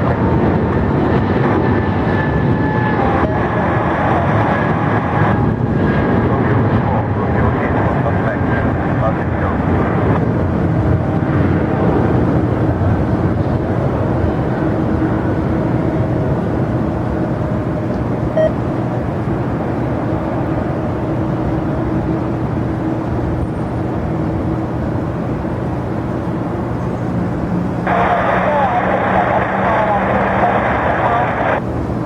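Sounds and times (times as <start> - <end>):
jet engines rumbling: 0.0 - 32.0.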